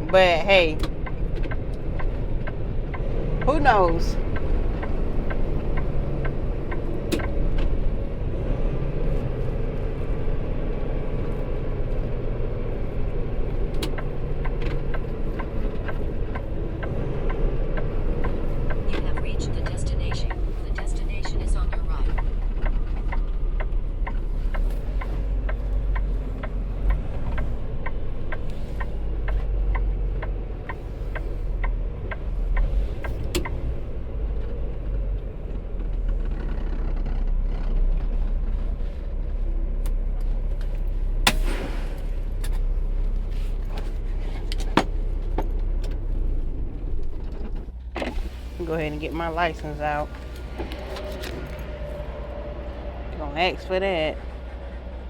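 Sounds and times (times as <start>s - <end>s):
turn signal clicking: 0.0s - 38.7s
diesel truck engine running: 0.0s - 55.0s.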